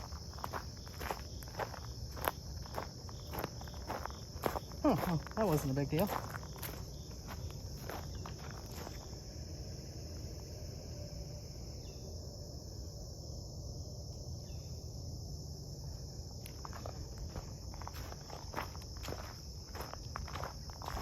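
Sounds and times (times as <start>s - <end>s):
footsteps crunching on dry ground: 0.0s - 9.3s, 16.2s - 21.0s
high-pitched insect drone: 0.0s - 21.0s.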